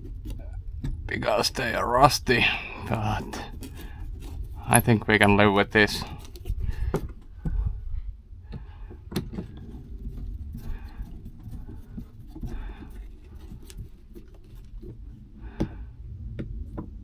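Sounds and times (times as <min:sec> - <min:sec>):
low rumble: 0:15.0 - 0:17.0.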